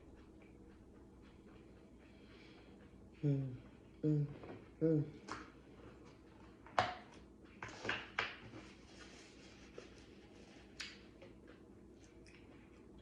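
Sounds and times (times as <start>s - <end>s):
eating smacks and crackles: 10.6s - 13.0s.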